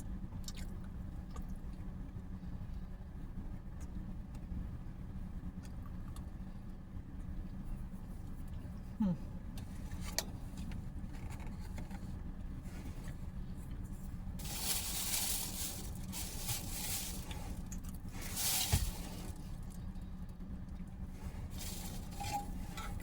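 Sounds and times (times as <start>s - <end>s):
steady low hum: 0.0s - 23.0s
quiet chewing: 5.6s - 6.3s
noisy rustles: 14.4s - 19.7s.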